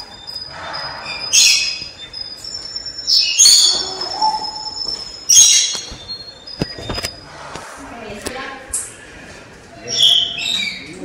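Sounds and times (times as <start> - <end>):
harsh bird squawks: 0.0 - 6.6.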